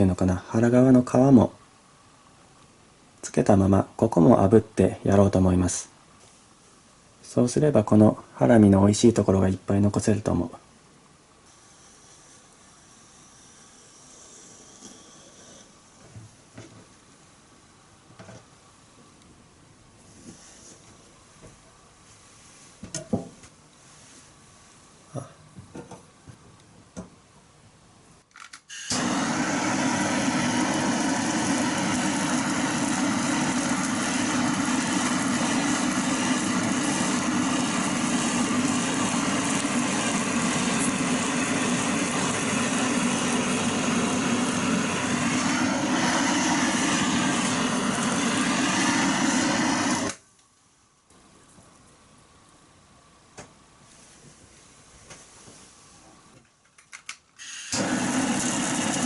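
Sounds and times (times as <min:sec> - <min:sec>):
blowtorch hissing: 0:11.5 - 0:16.0, 0:28.7 - 0:50.2, 0:57.4 - 0:59.0
small clicks and knocks: 0:56.4 - 0:57.4.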